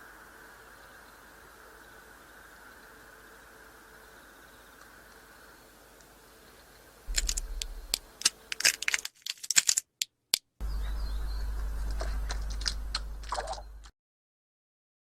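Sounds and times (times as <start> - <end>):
low hum: 7.1 - 8.9, 10.6 - 13.9
sharp clicks and taps: 7.1 - 10.5.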